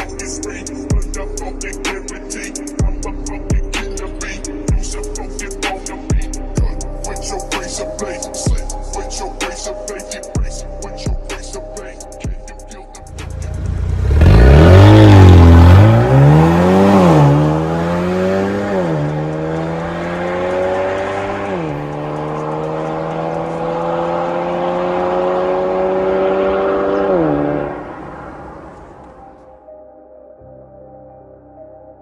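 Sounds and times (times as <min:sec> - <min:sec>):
car exhaust accelerating: 0:13.0 - 0:29.2.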